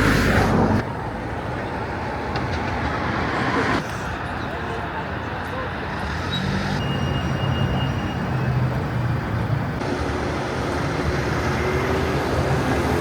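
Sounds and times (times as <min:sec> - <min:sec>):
road vehicle engine hum: 0:00.0 - 0:13.0.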